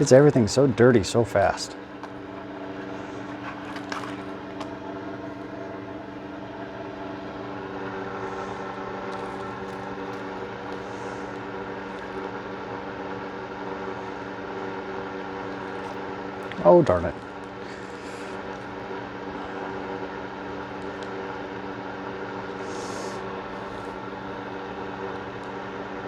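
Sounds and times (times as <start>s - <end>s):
machine hum: 0.0s - 26.0s.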